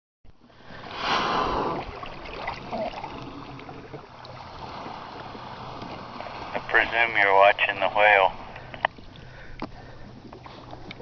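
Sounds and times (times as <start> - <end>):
water washing around kayak: 0.4 - 11.0
whale blowing: 0.5 - 6.6.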